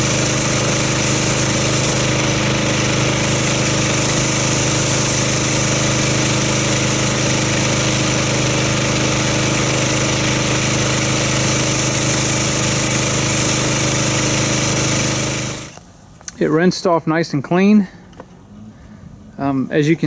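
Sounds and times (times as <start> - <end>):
pressure washer engine running: 0.0 - 15.8
water spray hissing: 0.0 - 15.8.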